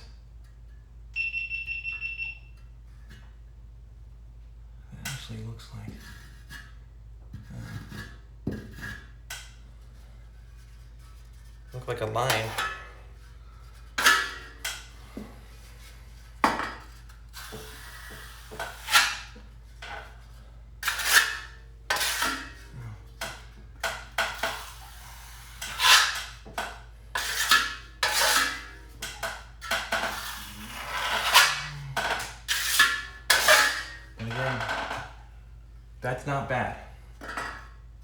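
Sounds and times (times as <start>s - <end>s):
drywall knife scraping compound: 5.7s - 16.2s, 16.9s - 20.0s, 20.8s - 34.5s.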